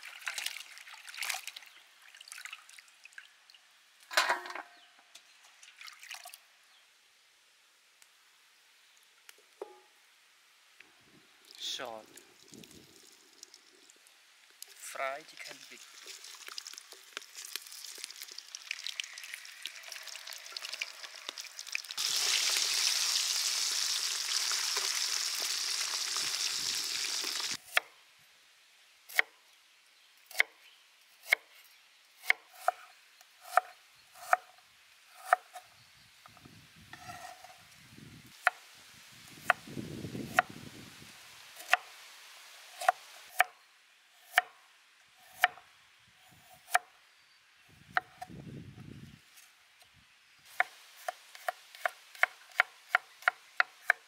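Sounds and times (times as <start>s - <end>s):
food sizzling in hot oil: 15.4s - 27.6s.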